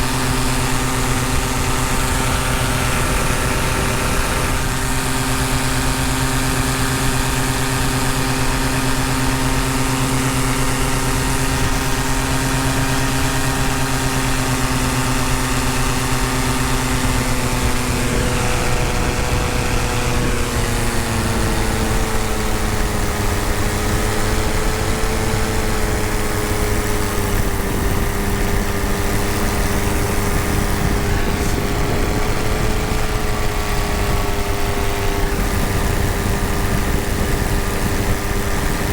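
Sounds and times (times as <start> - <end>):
paramotor engine and propeller: 0.0 - 38.9.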